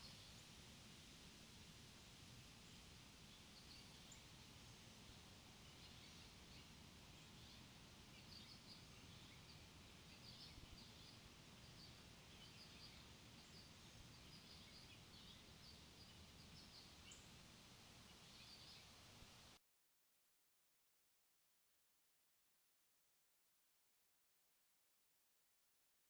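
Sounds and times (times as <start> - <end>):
outdoor background hiss: 0.0 - 19.6
songbirds chirping: 0.0 - 19.6.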